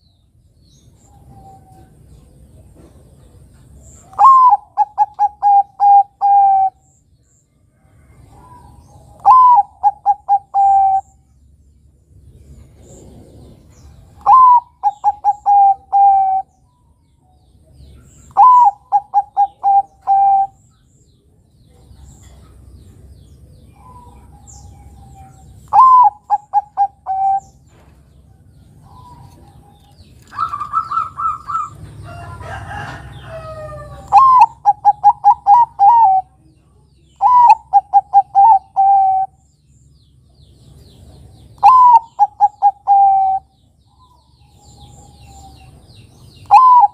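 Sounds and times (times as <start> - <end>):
dove cooing: 4.0 - 6.8, 8.2 - 11.2, 12.8 - 16.5, 18.2 - 20.6, 23.8 - 27.6, 28.8 - 36.4, 37.2 - 39.4, 41.6 - 45.8, 46.4 - 46.9.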